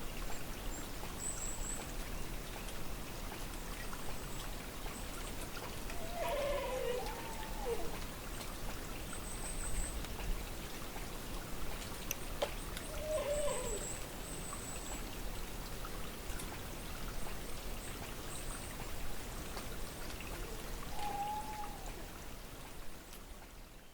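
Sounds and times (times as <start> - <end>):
distant animal call: 5.9 - 8.0, 12.9 - 14.0, 20.3 - 22.0.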